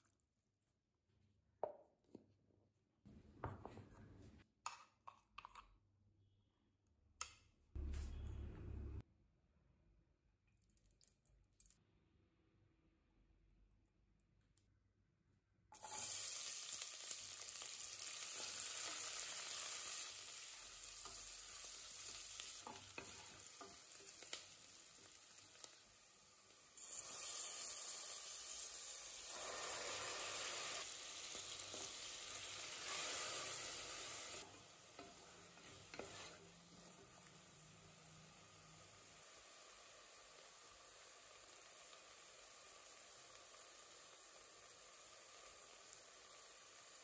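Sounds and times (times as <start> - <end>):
onions sizzling in oil: 15.8 - 47.0
wooden spatula scraping pan: 35.0 - 36.7.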